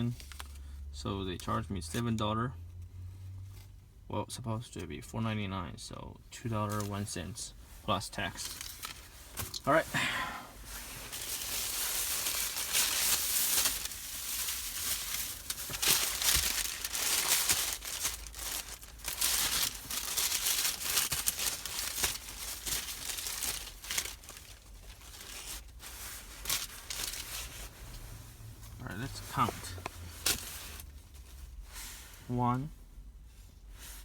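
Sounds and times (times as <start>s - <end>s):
paper wrapper crinkling: 8.3s - 9.8s, 10.8s - 28.0s.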